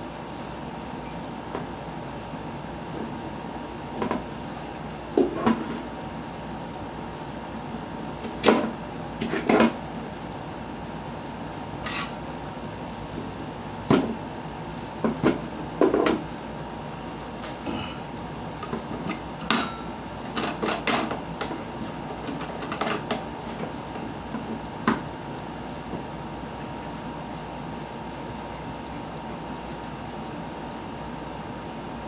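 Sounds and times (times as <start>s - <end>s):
knocks and clicks of metal fan pole: 20.4s - 25.1s.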